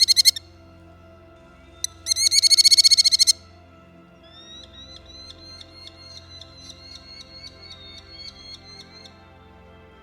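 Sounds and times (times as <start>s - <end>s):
falcon calling shrill chatter: 0.0s - 0.4s, 1.8s - 3.4s
faint background music: 0.0s - 10.0s.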